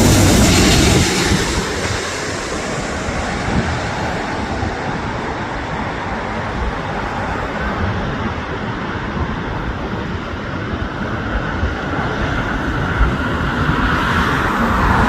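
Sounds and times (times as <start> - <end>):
jet engine roar: 0.0 - 15.0
road traffic hum: 0.0 - 15.0.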